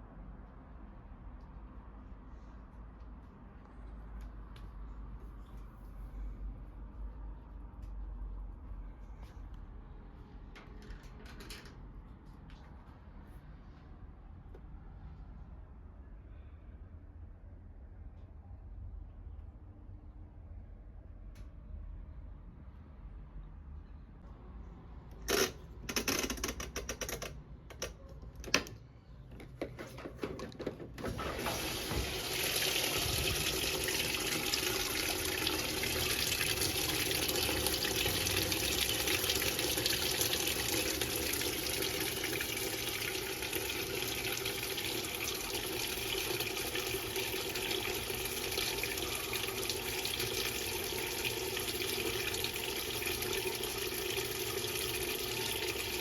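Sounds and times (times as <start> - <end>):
water rushing into drum: 31.0 - 56.0.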